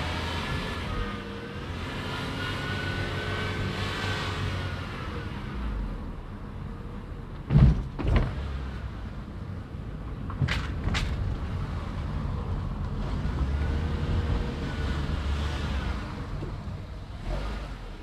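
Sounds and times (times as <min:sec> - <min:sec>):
loud thumps: 0:07.5 - 0:08.4.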